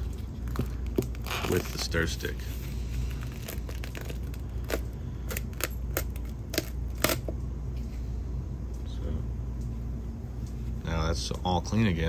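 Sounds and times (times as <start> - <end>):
plastic cup crackling and snapping: 0.0 - 2.0, 3.0 - 7.3
steady low hum: 0.0 - 12.0.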